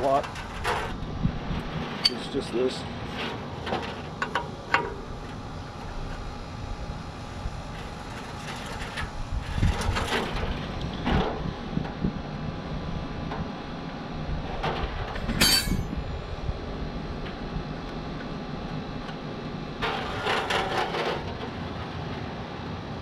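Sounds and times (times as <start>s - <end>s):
background hum: 0.0s - 23.0s
wrench and metal fittings clanking: 15.4s - 15.9s.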